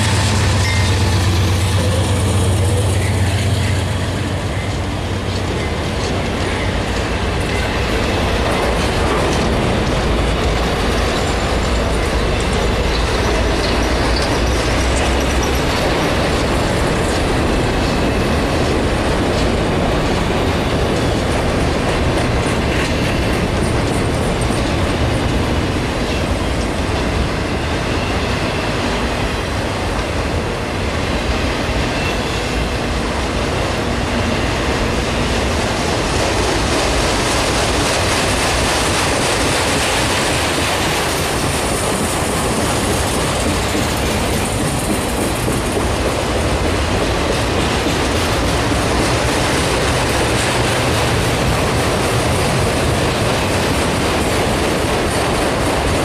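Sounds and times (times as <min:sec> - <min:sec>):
steel wheels clattering on rails: 0:00.0 - 0:56.0.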